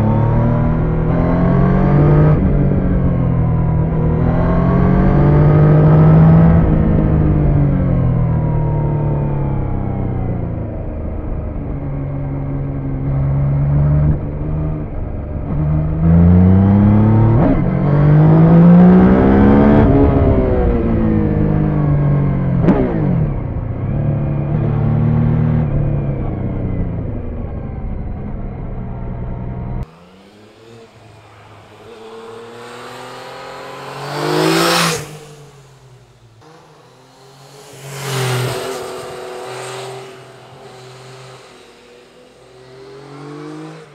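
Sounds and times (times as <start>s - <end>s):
motorcycle engine accelerating: 0.0s - 43.9s
motorcycle passing by: 29.8s - 43.9s.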